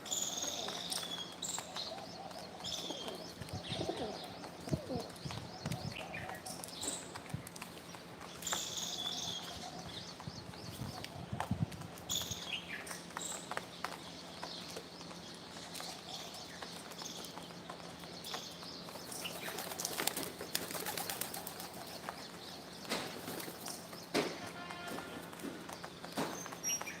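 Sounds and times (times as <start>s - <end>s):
birds flapping wings: 0.1s - 27.0s.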